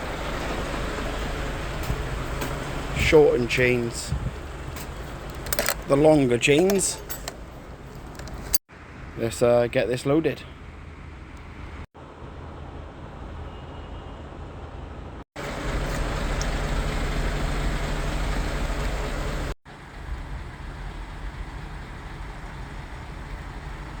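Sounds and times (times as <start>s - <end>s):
diesel lorry engine running: 0.0s - 8.6s, 15.4s - 24.0s.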